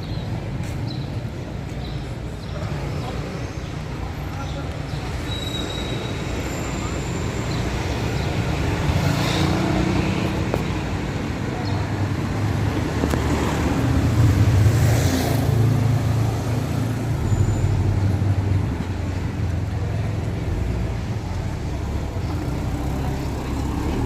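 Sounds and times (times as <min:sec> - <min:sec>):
street traffic: 0:00.0 - 0:24.0
vehicle engine humming: 0:06.2 - 0:24.0.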